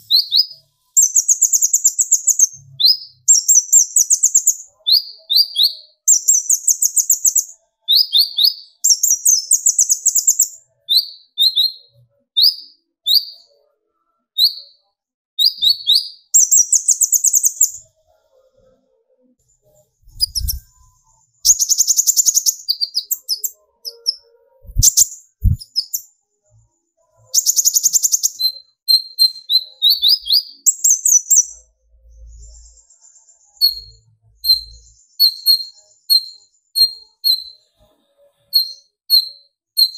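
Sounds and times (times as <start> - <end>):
bird calling in high chirps: 20.1 - 20.8, 21.4 - 26.1, 27.4 - 31.6, 33.6 - 37.6, 38.5 - 39.9
faint low thumps: 24.6 - 25.6.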